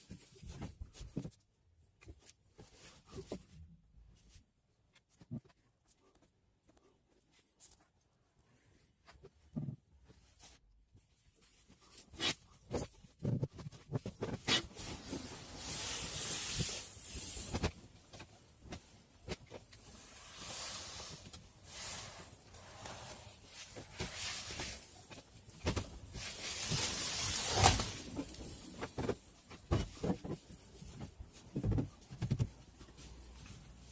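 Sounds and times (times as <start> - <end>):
scratchy hiss: 14.5 - 18.2, 19.7 - 30.3.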